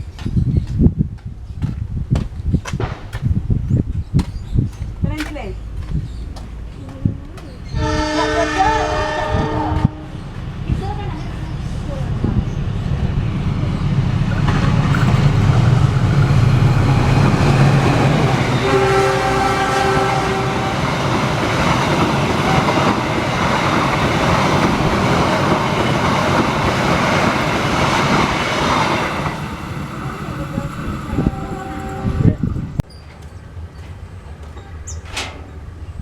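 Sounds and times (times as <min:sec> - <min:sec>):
locomotive engine rumbling: 0:02.8 - 0:36.0
train coaches rattling over rails: 0:04.2 - 0:36.0
train horn: 0:07.7 - 0:10.3, 0:17.5 - 0:21.4, 0:22.1 - 0:23.3, 0:31.1 - 0:32.5.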